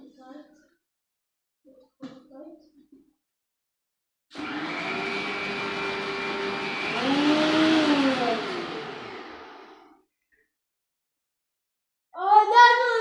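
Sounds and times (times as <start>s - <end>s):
blender motor running: 4.3s - 10.0s.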